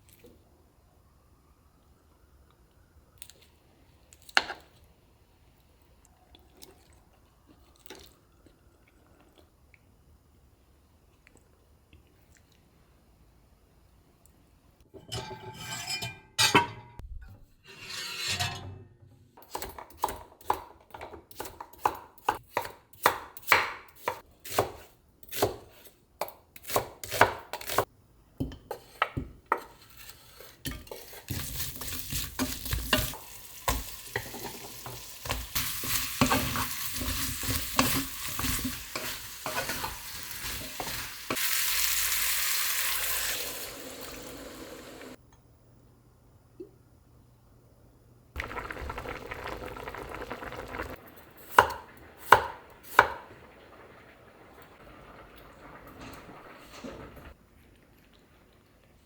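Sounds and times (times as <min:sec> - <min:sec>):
food sizzling in a pan: 0:30.8 - 0:45.2, 0:48.4 - 0:57.4.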